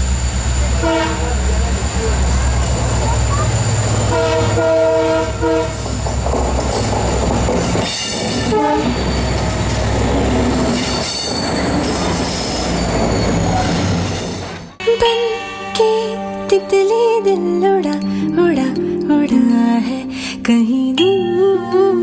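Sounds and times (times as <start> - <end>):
train rumbling along track: 0.0 - 14.8
train horn: 0.0 - 15.7.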